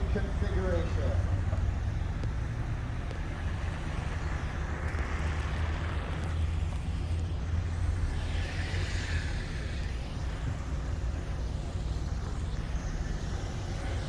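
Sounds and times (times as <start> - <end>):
aircraft rotors rumbling: 0.0 - 14.0
rushing hiss: 3.5 - 14.0.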